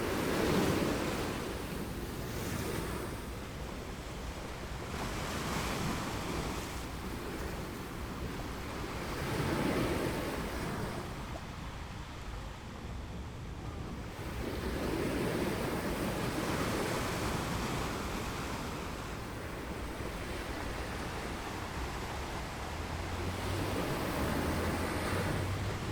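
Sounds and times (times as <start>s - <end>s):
ocean waves breaking on beach: 0.0s - 25.9s
wind on microphone: 0.0s - 25.9s.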